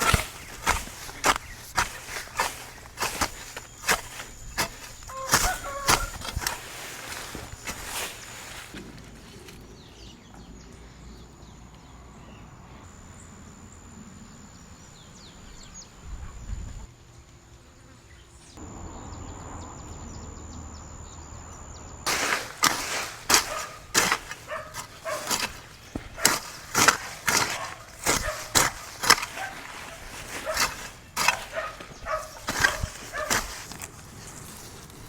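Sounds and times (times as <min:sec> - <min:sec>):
sharp knocks on hard ground: 0:00.0 - 0:08.8, 0:22.1 - 0:33.9.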